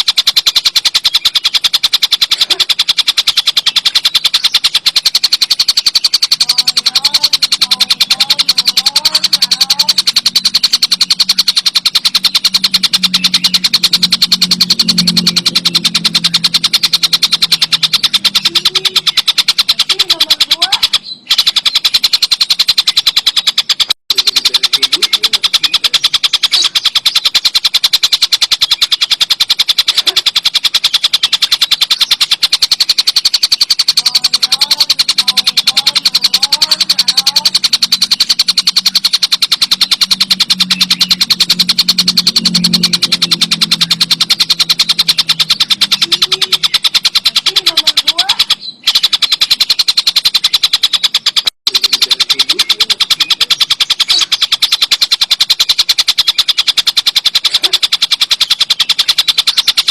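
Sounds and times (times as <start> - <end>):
kingfisher rattling call: 0.0 - 59.9.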